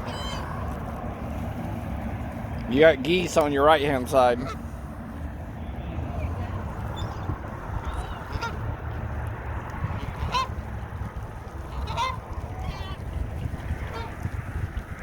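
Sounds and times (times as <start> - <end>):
geese honking: 0.0 - 0.8, 3.9 - 4.8, 6.2 - 8.7, 9.8 - 10.7, 11.5 - 14.3
low background rumble: 0.0 - 15.0.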